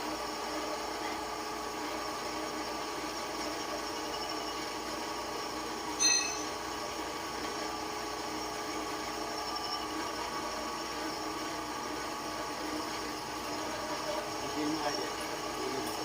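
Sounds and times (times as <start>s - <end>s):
shop machine humming: 0.0s - 16.0s
ringing metal clink: 6.0s - 6.5s.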